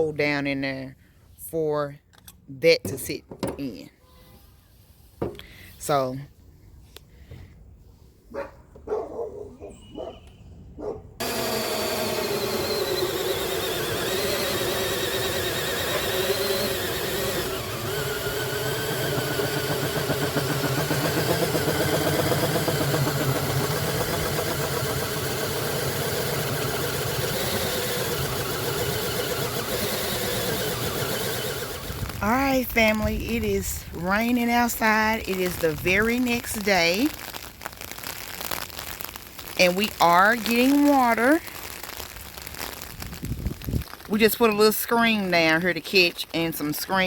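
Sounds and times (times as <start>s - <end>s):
power drill cutting hole: 11.2s - 32.2s.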